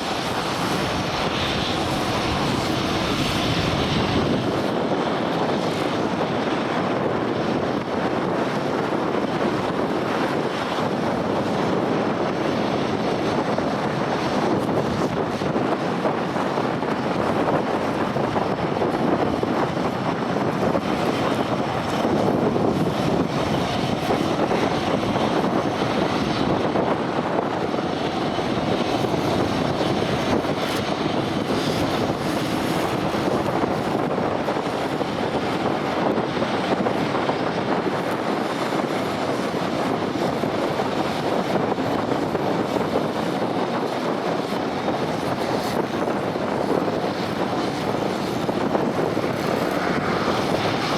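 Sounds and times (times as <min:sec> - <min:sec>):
airliner engines running: 0:00.0 - 0:50.9.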